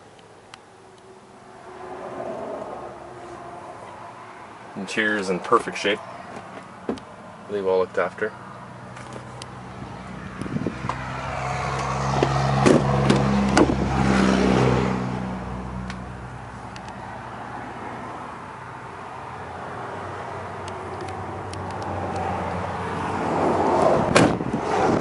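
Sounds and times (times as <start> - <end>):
diesel engine running: 8.4 - 17.4.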